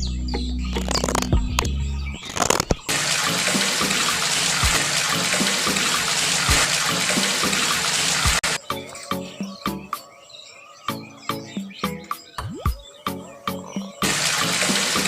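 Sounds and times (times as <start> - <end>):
water rushing and splashing: 2.4 - 8.6, 14.0 - 15.0.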